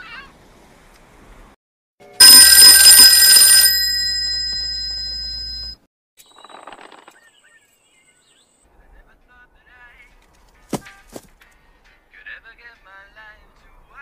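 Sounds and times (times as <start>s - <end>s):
metal bell ringing: 2.2s - 5.8s.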